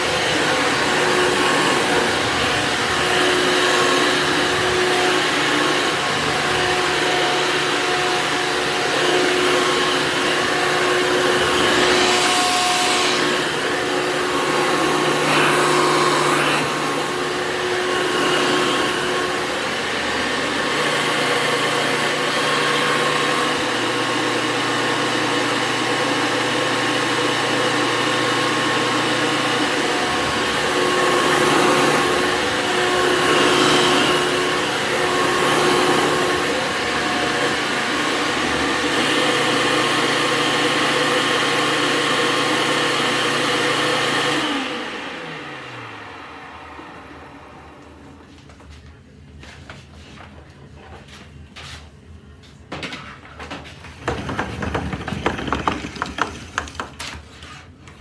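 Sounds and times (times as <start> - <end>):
motor running with rushing noise: 0.0 - 23.6.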